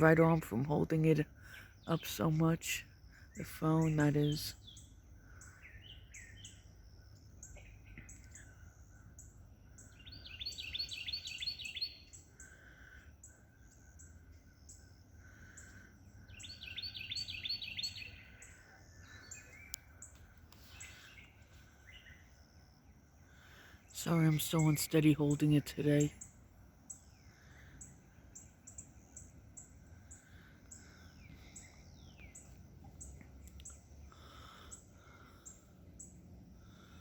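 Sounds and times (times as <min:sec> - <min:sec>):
songbirds singing: 0:00.0 - 0:37.0
fast trilled bird song: 0:01.7 - 0:12.4, 0:16.2 - 0:20.2.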